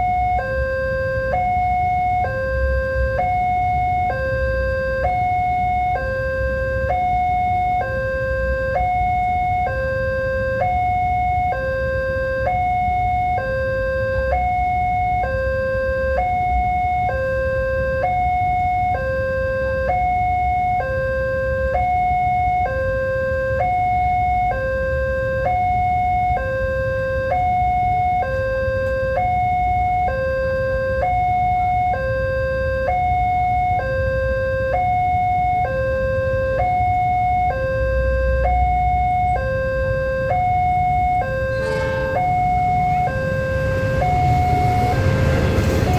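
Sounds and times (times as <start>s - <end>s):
level crossing alarm tones: 0.0s - 45.9s
steady low rumble: 36.3s - 45.9s.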